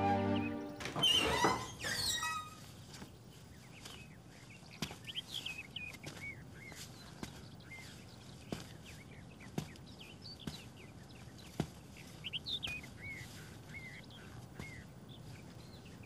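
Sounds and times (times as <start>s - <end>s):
background music: 0.0s - 1.4s
birds chirping: 0.0s - 16.0s.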